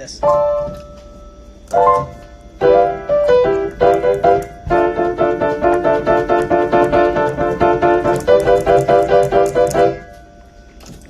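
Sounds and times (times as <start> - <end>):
piano chords: 0.0 - 10.8.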